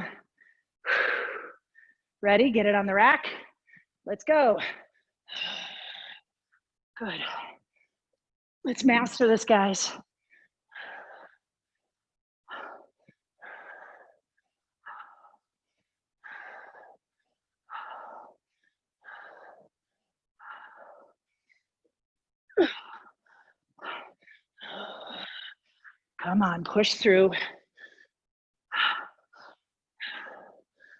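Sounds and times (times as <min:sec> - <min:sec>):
woman breathing hard: 0:00.0 - 0:02.1, 0:10.2 - 0:21.8, 0:22.6 - 0:26.0, 0:27.4 - 0:30.9.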